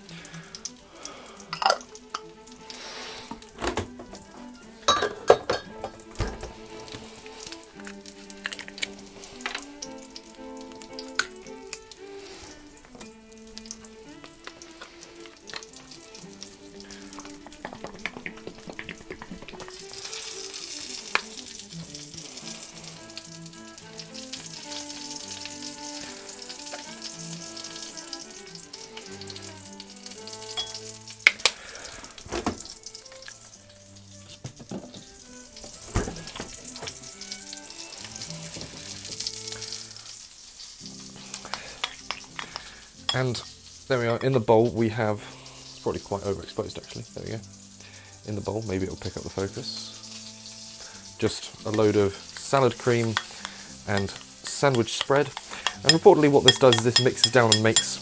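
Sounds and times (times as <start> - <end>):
background music: 0.0 - 58.0
food sizzling in a frying pan: 0.0 - 58.0
spoon knocking against a bowl: 55.7 - 58.0.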